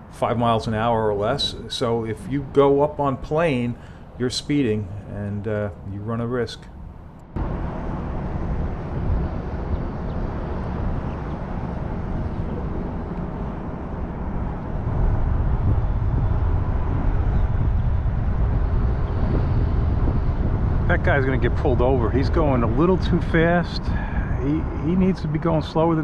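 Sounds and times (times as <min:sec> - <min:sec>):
motorboat passing at speed: 0:07.4 - 0:24.1.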